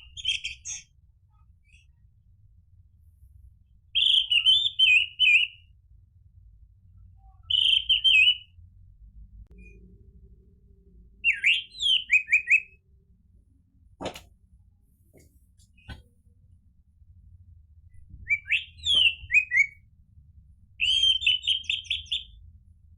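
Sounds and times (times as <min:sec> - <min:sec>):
thrush singing whistled notes: 0:11.2 - 0:12.8, 0:18.3 - 0:19.8, 0:20.8 - 0:22.4.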